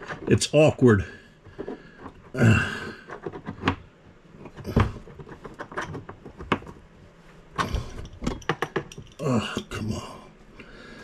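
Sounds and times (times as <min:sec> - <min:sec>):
plumbing fittings and tools clicking: 0:07.6 - 0:09.8.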